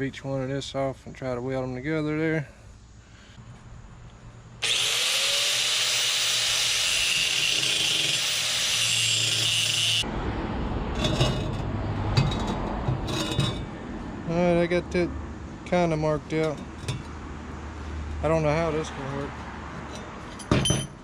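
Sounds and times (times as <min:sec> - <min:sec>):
angle grinder cutting metal pipe: 0:04.6 - 0:10.1.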